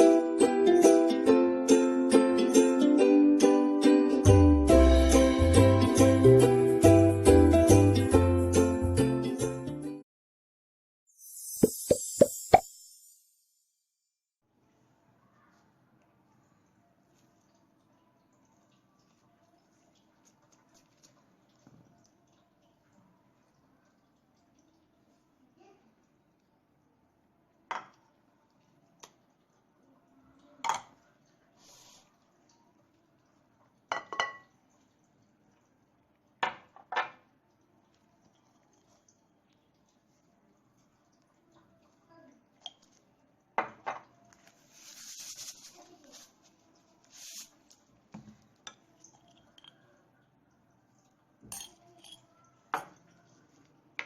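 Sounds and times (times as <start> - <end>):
dishes clinking: 33.9 - 34.5, 48.6 - 49.9, 51.4 - 53.0
soft hiss: 44.4 - 48.0
kitchen utensils and dishes clinking: 51.5 - 53.1.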